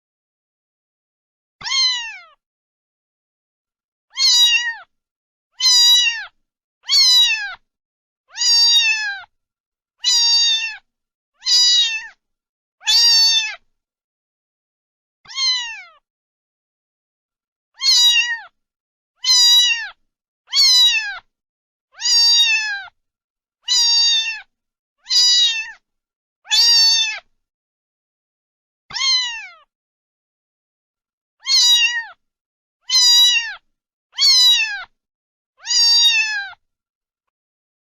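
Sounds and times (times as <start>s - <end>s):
cat meowing: 1.6s - 2.4s, 4.1s - 4.9s, 5.6s - 7.6s, 8.3s - 9.3s, 10.0s - 12.2s, 12.8s - 13.6s, 15.3s - 16.0s, 17.8s - 18.6s, 19.2s - 21.3s, 22.0s - 23.0s, 23.6s - 25.8s, 26.5s - 27.3s, 28.9s - 29.7s, 31.4s - 32.2s, 32.8s - 35.0s, 35.6s - 36.6s.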